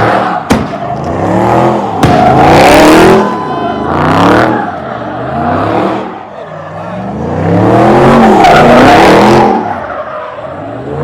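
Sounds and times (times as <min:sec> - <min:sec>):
sharp crack: 0:00.0 - 0:01.2, 0:01.8 - 0:02.6
car engine revving: 0:00.0 - 0:11.0.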